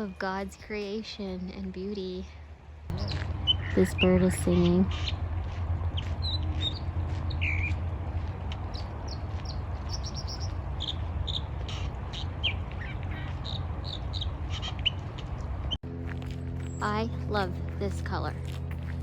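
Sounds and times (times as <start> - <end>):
wild birds chirping: 0.0 - 8.0, 8.6 - 15.8
low steady rumble: 0.0 - 19.0.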